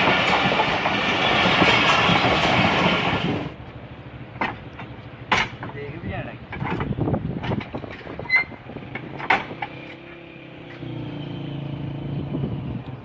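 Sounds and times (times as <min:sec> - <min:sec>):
crossing gate clanking shut: 0:04.4 - 0:10.1
squeak and click: 0:08.2 - 0:08.6.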